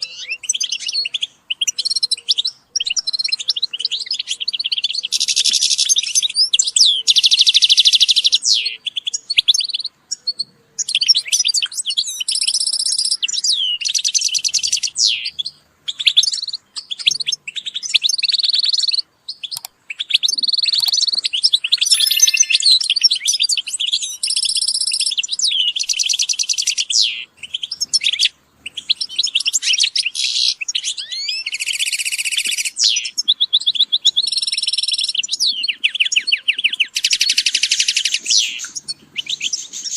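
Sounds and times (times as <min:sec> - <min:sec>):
finches twittering and trilling: 0:21.7 - 0:39.9.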